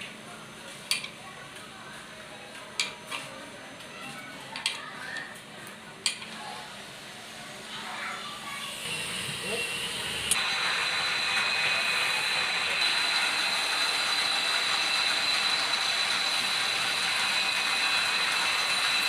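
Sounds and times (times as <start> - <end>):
lathe machine whining: 8.8 - 19.0.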